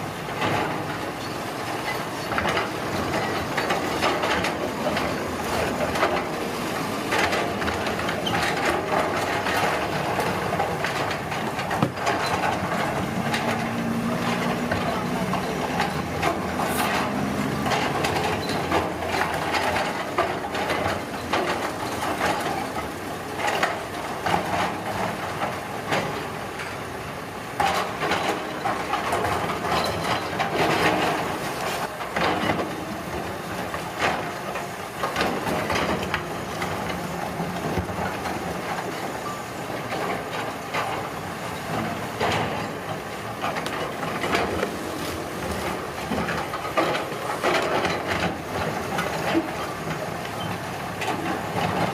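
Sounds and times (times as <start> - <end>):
diesel engine running: 4.2 - 21.9
rock and earth scraping: 11.2 - 20.3.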